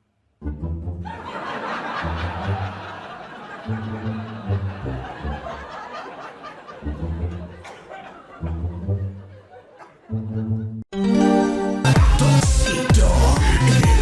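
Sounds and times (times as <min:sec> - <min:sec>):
background music with bass line: 0:00.4 - 0:03.0, 0:03.7 - 0:05.7, 0:06.8 - 0:07.6, 0:10.1 - 0:14.0
crowd laughing: 0:01.0 - 0:10.8.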